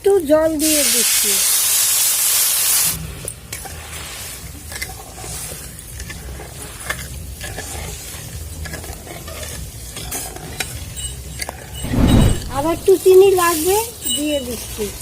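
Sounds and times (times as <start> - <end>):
water hissing on hot pan: 0.2 - 9.9, 12.5 - 15.0
low steady rumble: 11.8 - 13.0.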